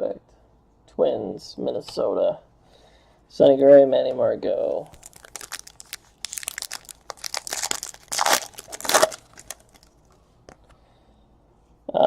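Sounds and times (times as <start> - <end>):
card pack wrapper crinkling: 4.8 - 10.2.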